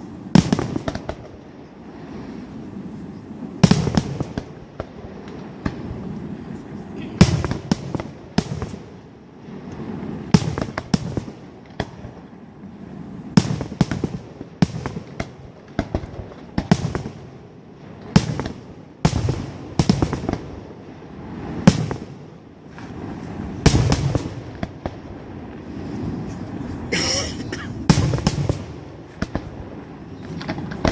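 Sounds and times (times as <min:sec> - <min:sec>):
fireworks bangs and cracks: 0:00.0 - 0:02.8, 0:03.5 - 0:30.9
low rumbling swell: 0:20.6 - 0:30.9.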